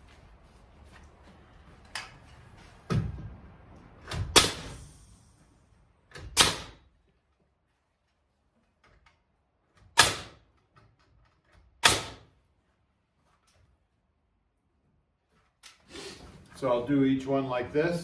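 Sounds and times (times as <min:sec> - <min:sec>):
sharp wooden knocks: 0:09.9 - 0:10.5, 0:11.8 - 0:12.3.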